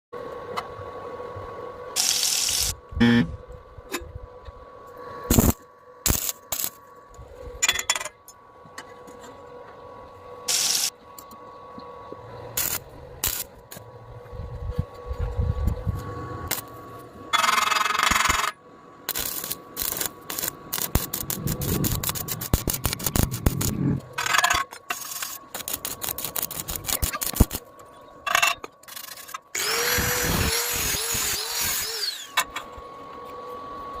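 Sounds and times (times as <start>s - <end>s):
power tool bursts: 2.0s - 3.3s, 10.5s - 10.9s, 29.0s - 32.5s.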